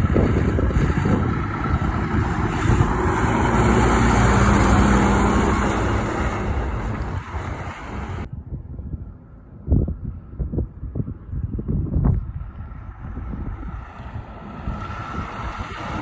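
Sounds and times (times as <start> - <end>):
truck driving past: 0.0 - 8.3, 12.6 - 16.0.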